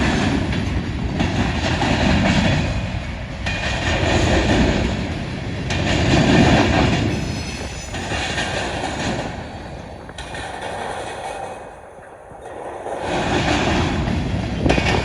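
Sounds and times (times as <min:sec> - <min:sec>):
train wheels clattering on rails: 0:00.0 - 0:15.0
high wheel squeal: 0:06.2 - 0:13.7.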